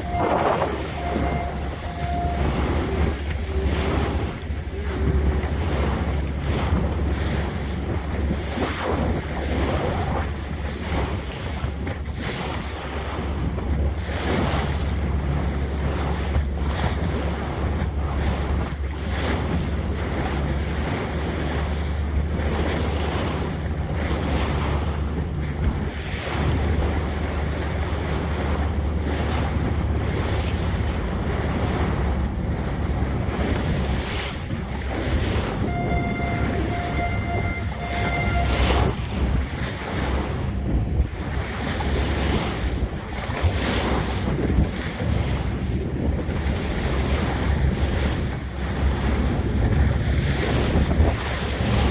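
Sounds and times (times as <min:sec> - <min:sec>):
boat engine hum: 0:00.0 - 0:51.9
water wash: 0:00.0 - 0:51.9
wind buffeting microphone: 0:00.0 - 0:51.9.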